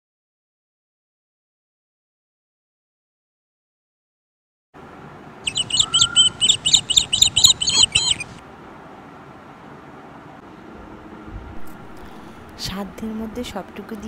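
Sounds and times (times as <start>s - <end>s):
songbird high chirps: 5.4s - 8.4s.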